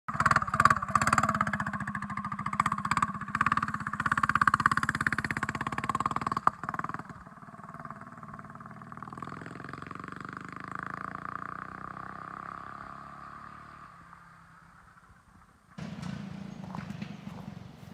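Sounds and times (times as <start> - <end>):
small engine running: 0.1 - 12.0.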